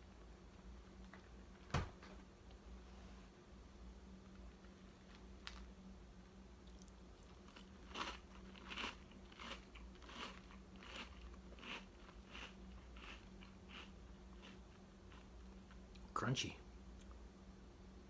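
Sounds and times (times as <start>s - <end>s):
crunching cereal being chewed: 4.2s - 5.8s, 6.6s - 16.1s.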